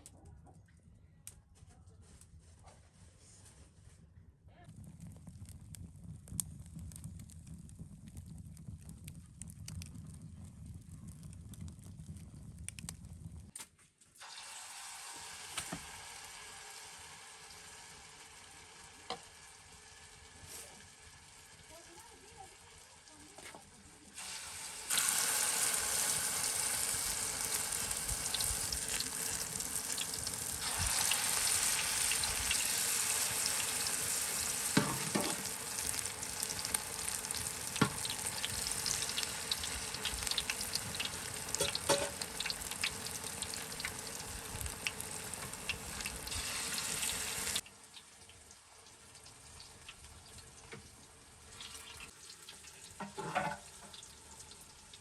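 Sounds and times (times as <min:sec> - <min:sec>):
food sizzling in hot oil: 0:14.2 - 0:55.0.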